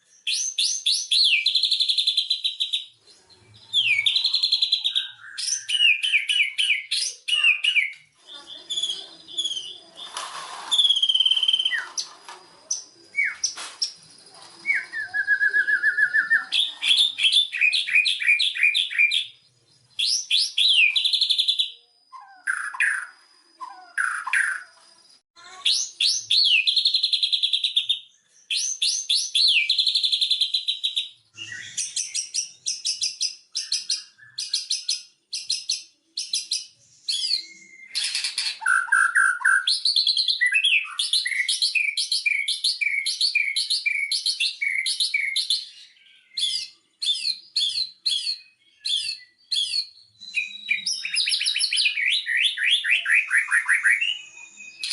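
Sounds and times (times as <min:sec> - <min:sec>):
songbird singing: 0:00.0 - 0:54.9.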